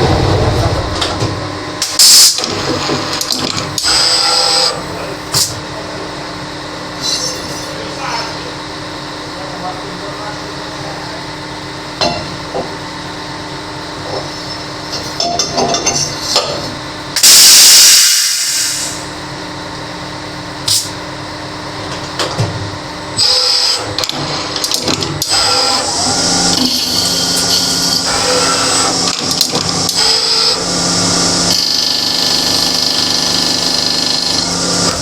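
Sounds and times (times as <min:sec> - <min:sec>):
loud hiss: 0:17.2 - 0:19.1
lathe machine hum: 0:18.4 - 0:35.0
tool cutting metal: 0:23.2 - 0:35.0.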